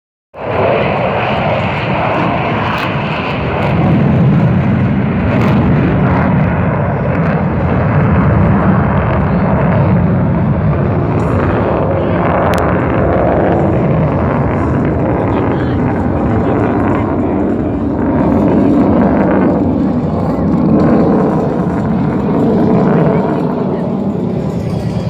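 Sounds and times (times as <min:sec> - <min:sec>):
jet engines running: 0:00.4 - 0:25.0.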